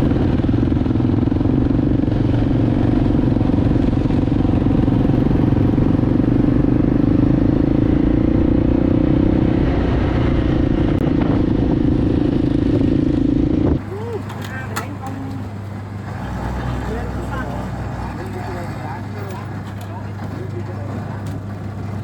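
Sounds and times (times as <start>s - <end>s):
motorcycle engine running steadily: 0.0s - 22.0s.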